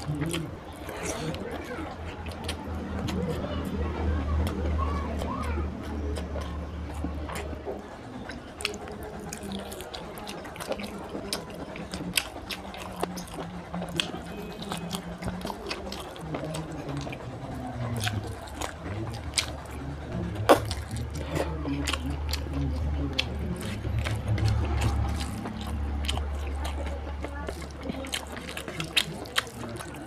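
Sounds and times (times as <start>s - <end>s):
person chewing and biting: 0.0s - 3.8s, 8.2s - 30.0s
wet mouth sounds: 8.2s - 30.0s.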